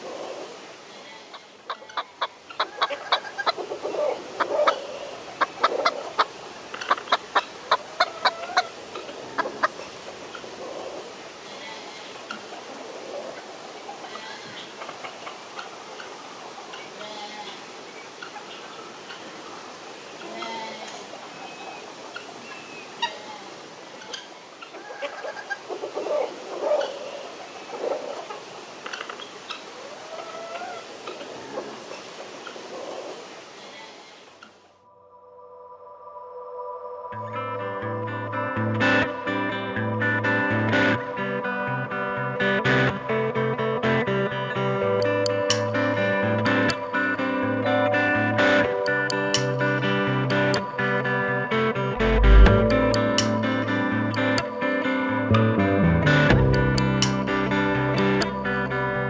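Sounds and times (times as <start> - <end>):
gamebird clucking: 1.3 - 11.0
game birds calling: 1.3 - 34.6.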